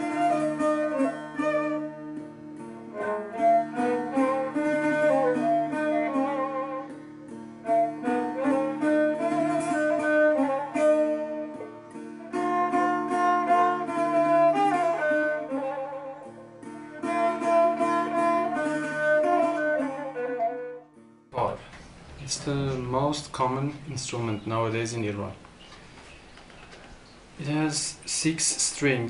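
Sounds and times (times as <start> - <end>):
solo string instrument melody: 0.0 - 21.5.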